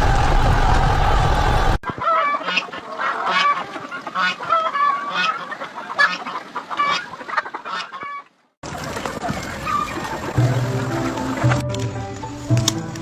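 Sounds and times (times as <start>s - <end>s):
poultry calling: 1.9s - 11.5s.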